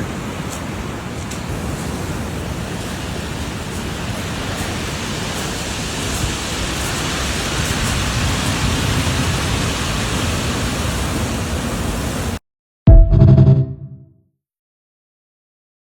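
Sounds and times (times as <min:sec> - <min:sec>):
ocean surf washing on beach: 0:00.0 - 0:12.4.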